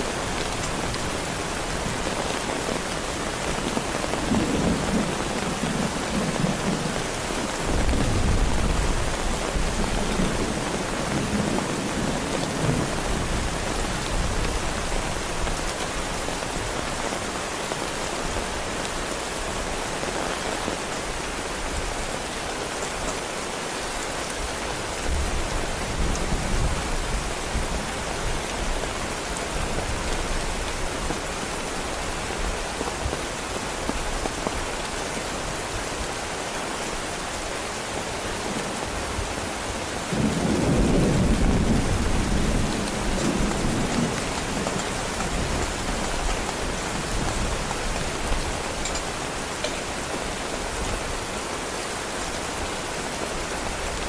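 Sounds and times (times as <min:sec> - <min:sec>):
heavy rain falling: 0:00.0 - 0:54.0
thunder rumbling: 0:40.1 - 0:49.0.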